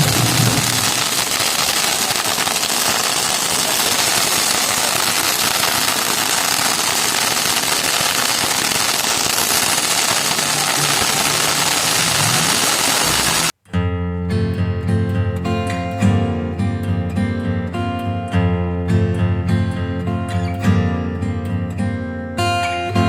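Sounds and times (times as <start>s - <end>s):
firecrackers crackling: 0.0s - 13.6s.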